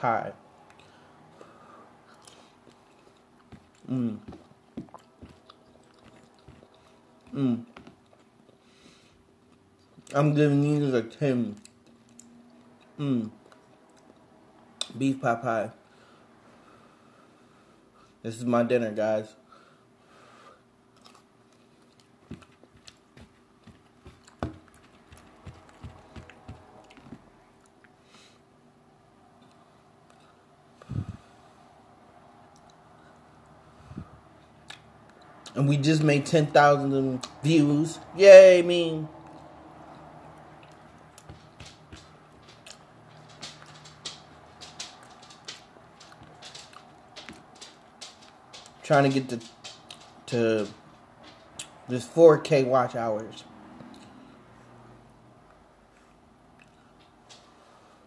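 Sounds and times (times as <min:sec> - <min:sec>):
man chewing wetly: 0:02.0 - 0:08.7, 0:20.9 - 0:28.0, 0:34.6 - 0:35.6, 0:39.2 - 0:48.8, 0:56.5 - 0:57.2.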